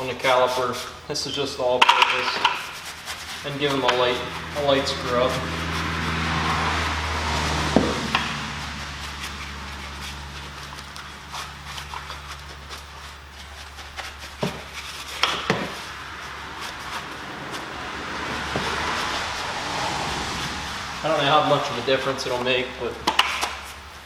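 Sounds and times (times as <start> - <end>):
steady low hum: 0.0 - 24.0
bristle brush scrubbing: 2.1 - 23.0
sharp knocks: 7.7 - 8.6.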